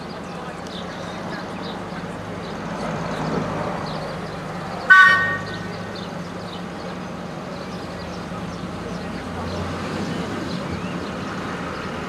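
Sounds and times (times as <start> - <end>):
locomotive whistle toot: 4.9 - 5.7.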